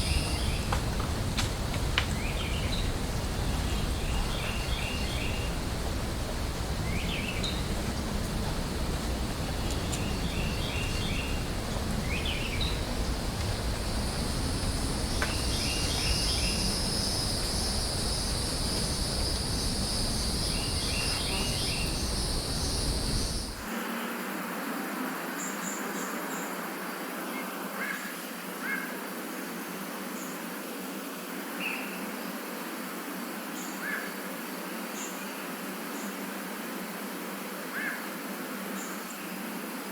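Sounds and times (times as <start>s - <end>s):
low rumble: 0.0s - 23.6s
insect buzzing: 0.0s - 24.4s.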